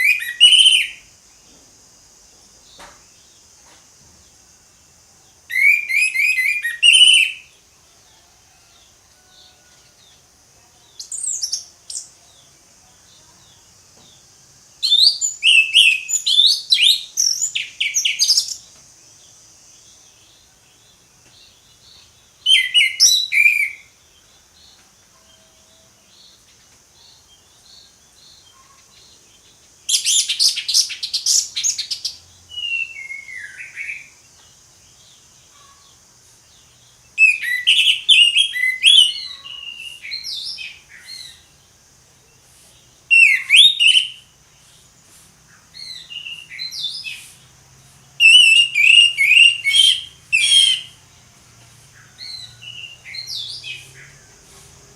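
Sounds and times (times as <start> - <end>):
thrush singing whistles: 0.0 - 1.2, 5.4 - 7.6, 14.8 - 18.7, 22.3 - 24.0, 29.9 - 34.2, 37.2 - 41.5, 43.0 - 44.4, 45.7 - 47.5, 48.2 - 51.2, 52.0 - 54.4
faint high hiss: 0.0 - 54.9.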